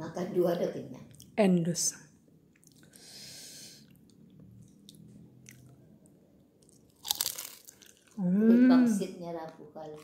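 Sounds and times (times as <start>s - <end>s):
person chewing crunchy food: 2.5s - 3.0s, 3.8s - 5.8s, 6.6s - 8.2s.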